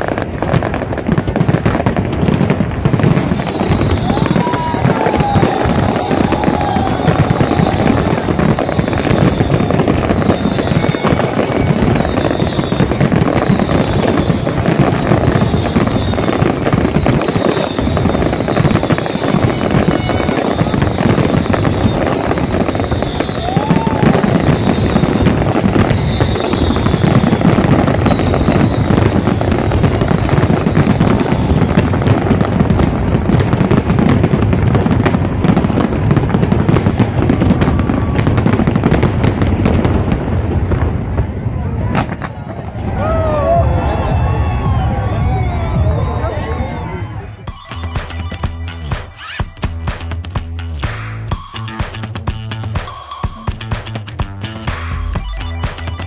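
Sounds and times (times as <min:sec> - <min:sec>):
fireworks bangs and crackling: 0:00.0 - 0:56.0
falling firework whistles: 0:02.3 - 0:34.3, 0:35.4 - 0:39.7.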